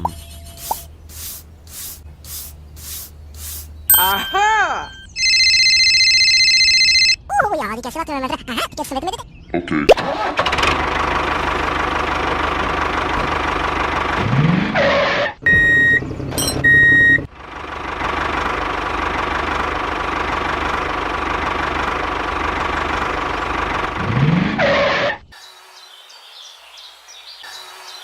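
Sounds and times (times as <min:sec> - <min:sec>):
tractor engine running: 0:10.1 - 0:14.7, 0:15.6 - 0:24.4.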